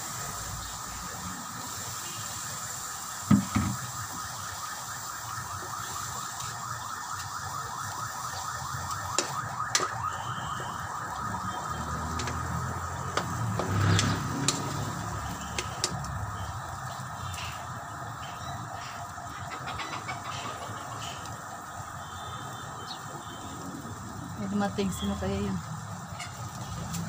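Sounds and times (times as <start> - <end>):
spatula working a wok: 0.0 - 21.4
food sizzling in a wok: 0.0 - 27.0
firewood knocking: 3.3 - 3.9, 9.1 - 10.0, 13.1 - 14.7.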